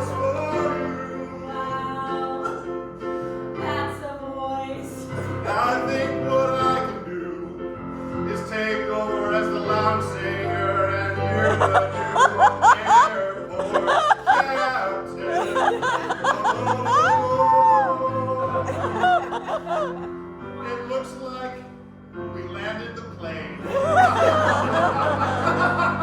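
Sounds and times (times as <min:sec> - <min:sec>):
people singing: 0:00.0 - 0:02.7, 0:03.6 - 0:07.5, 0:08.4 - 0:20.1, 0:23.7 - 0:26.0
piano accompaniment: 0:00.0 - 0:26.0
laughter and chatter: 0:11.4 - 0:20.2, 0:23.6 - 0:26.0.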